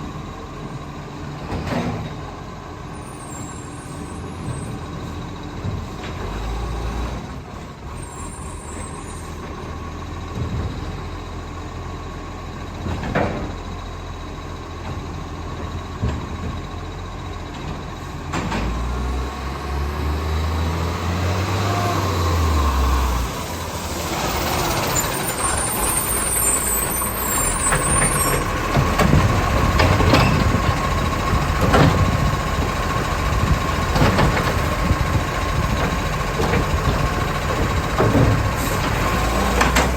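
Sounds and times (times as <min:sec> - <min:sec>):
knocks and clanks: 0:14.8 - 0:16.8, 0:27.6 - 0:32.7, 0:33.3 - 0:39.9
diesel truck engine revving: 0:18.0 - 0:39.9.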